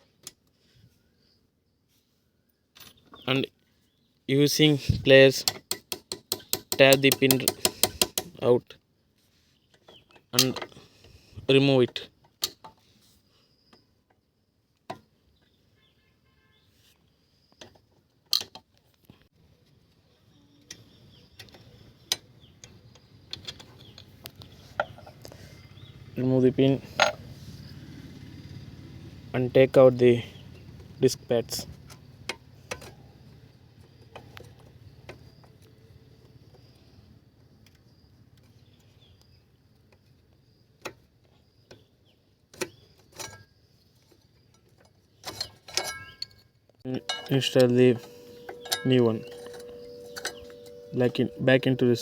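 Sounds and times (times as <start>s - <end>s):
metallic clinks of brake parts: 26.8s - 27.3s, 44.5s - 52.0s
pliers clicking on metal: 47.0s - 51.7s.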